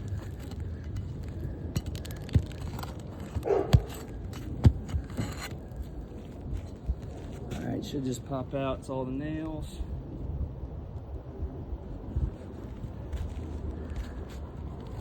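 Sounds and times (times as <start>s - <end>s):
sharp metal knocks: 0.4s - 5.5s.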